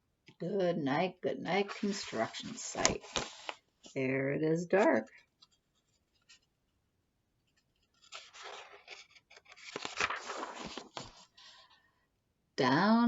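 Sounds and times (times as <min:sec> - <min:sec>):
paper page turning: 0:01.8 - 0:03.6, 0:07.8 - 0:11.6.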